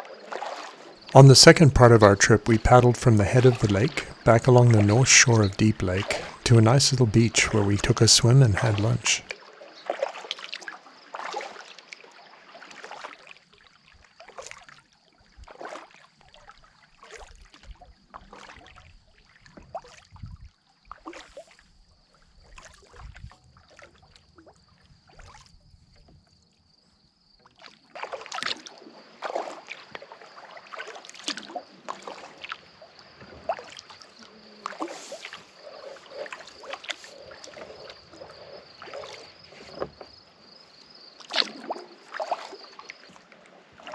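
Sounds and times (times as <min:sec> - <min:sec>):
paddle splashing in water: 0:00.0 - 0:13.4, 0:15.4 - 0:16.0, 0:27.6 - 0:43.9.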